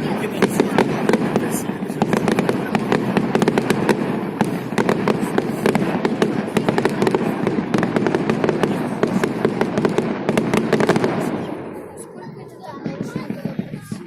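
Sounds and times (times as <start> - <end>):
fireworks crackling and banging: 0.0 - 14.0.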